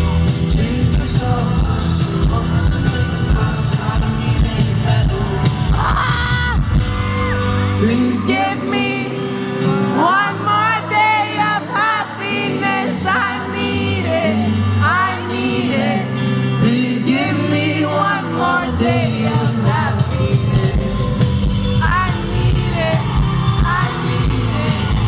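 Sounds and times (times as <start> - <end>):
man singing: 0.0 - 6.4, 7.6 - 25.0
band playing sustained chords: 6.6 - 25.0.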